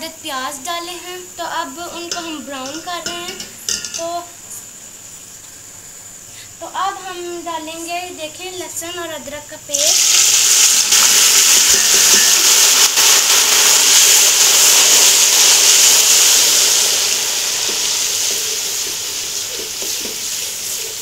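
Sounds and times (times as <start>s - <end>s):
paste sizzling in hot oil: 9.7s - 21.0s.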